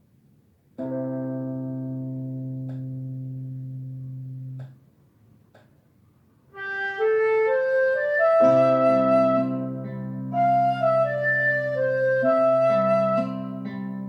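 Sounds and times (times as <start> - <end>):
harmonica playing: 6.6 - 9.7, 10.3 - 13.7.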